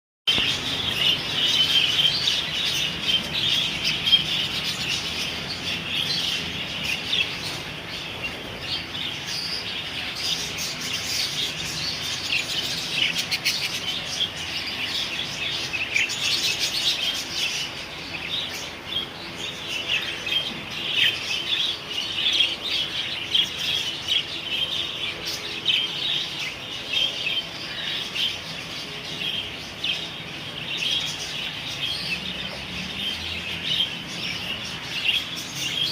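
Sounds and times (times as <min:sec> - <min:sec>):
small parrots chattering and chirping: 0:00.3 - 0:35.9.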